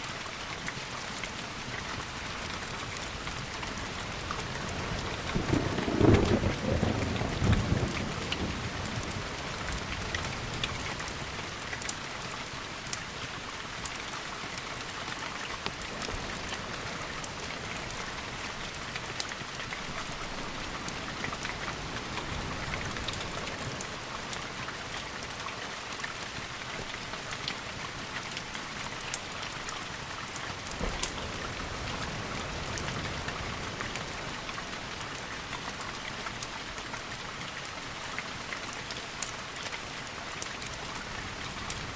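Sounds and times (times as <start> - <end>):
steady rain: 0.0 - 41.9
thunder rolling: 5.3 - 9.1, 30.8 - 33.6.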